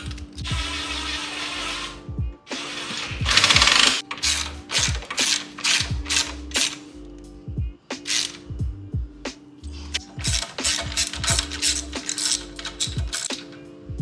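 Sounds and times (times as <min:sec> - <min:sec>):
ratchet wrench clicking: 0:00.0 - 0:01.7, 0:02.6 - 0:07.2, 0:08.0 - 0:08.5, 0:09.9 - 0:13.7
music with deep bass beat: 0:00.0 - 0:14.0.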